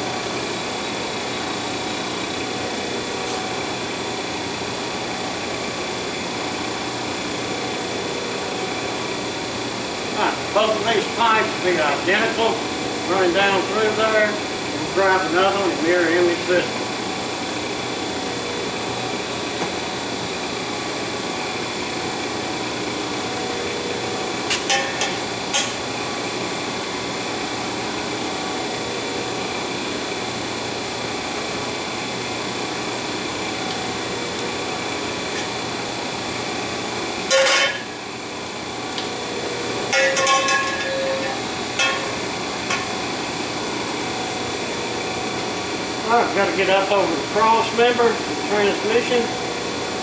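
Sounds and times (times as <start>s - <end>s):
hydraulic pipe bender running: 0.0s - 50.0s
sharp metal clanks: 24.5s - 25.8s, 37.3s - 37.9s, 39.9s - 42.8s.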